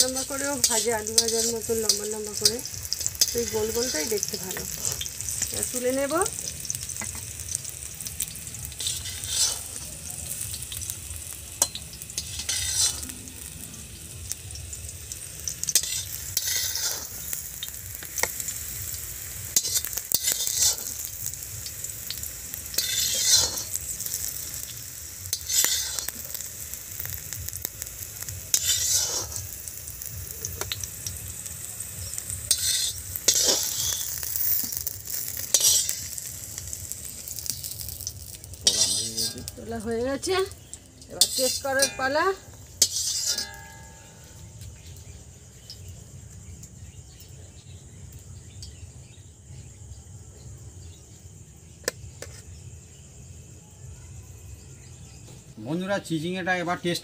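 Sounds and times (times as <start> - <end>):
metal spatula scraping pan: 0.0 - 5.5, 8.7 - 9.9, 11.6 - 13.4, 15.5 - 17.4, 19.6 - 21.1, 22.7 - 24.4, 25.3 - 26.4, 28.5 - 29.6, 32.5 - 36.2, 37.4 - 39.6, 40.6 - 44.5
slices frying in hot oil: 0.0 - 57.0.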